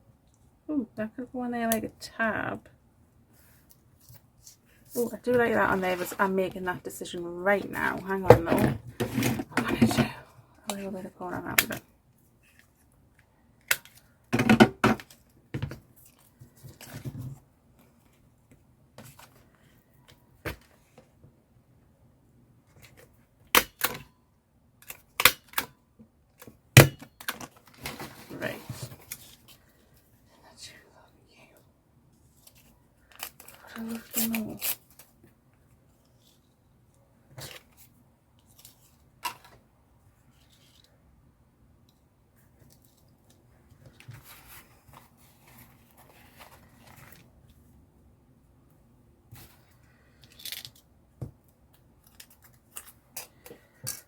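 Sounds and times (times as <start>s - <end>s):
paper rustling scrape: 3.4s - 6.4s
paper rustling: 43.8s - 47.6s.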